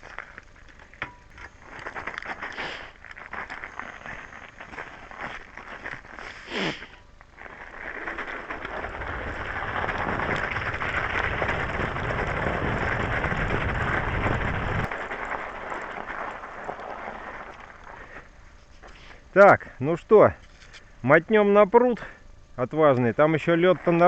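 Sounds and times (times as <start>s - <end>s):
tyres crunching over snow: 0.0s - 19.2s
low rumble: 7.3s - 18.1s.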